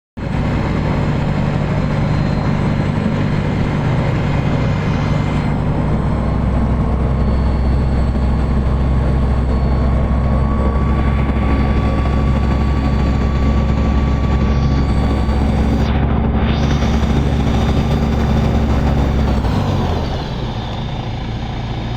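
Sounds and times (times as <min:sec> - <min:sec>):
aircraft engine humming: 0:00.2 - 0:21.9.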